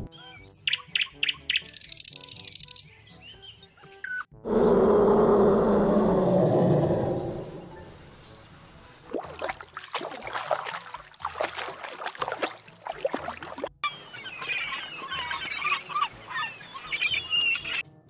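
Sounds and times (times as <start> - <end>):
seabirds calling: 4.5 - 8.2, 13.8 - 17.8
water splashing and sloshing: 8.8 - 13.8.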